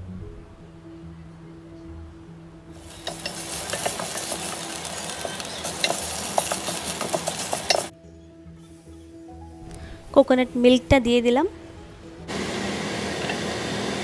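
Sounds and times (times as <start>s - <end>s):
curry paste sizzling in oil: 2.8s - 7.9s.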